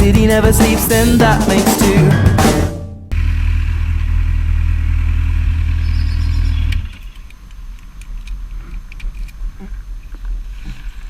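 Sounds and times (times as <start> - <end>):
motorcycle engine running: 2.0 - 6.8.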